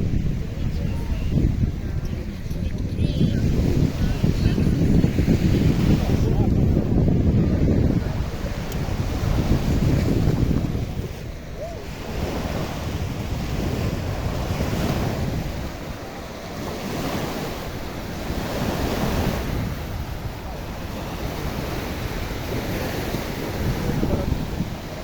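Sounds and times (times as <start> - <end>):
waves washing onto beach: 0.0 - 25.0
wind buffeting microphone: 0.0 - 25.0.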